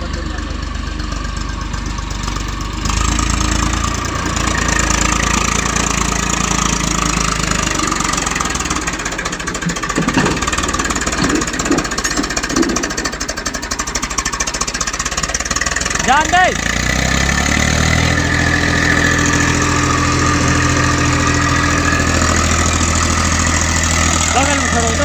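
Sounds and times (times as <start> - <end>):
diesel tractor engine clattering: 0.0 - 25.0
engine knocks: 0.0 - 25.0.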